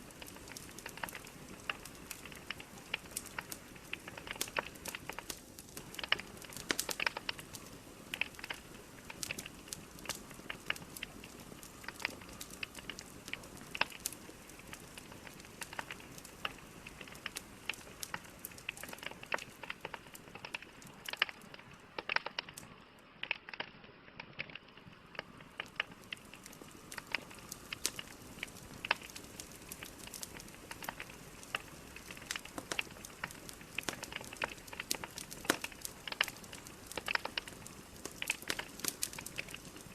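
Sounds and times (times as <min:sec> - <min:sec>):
logs crackling and popping: 0:00.0 - 0:39.9
soft hiss of fire: 0:00.0 - 0:39.9.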